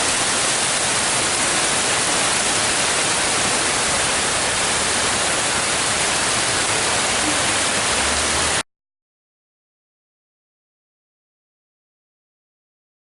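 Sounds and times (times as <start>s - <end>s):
water rushing: 0.0s - 8.6s.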